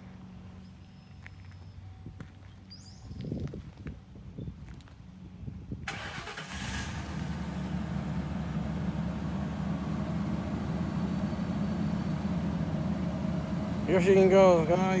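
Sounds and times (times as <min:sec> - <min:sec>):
car engine cranking and idling: 0:05.8 - 0:15.0.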